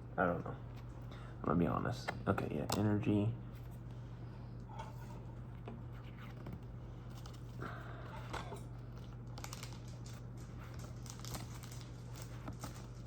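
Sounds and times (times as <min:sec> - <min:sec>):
steady low hum: 0:00.0 - 0:13.0
foil wrapper crinkling: 0:08.8 - 0:13.0.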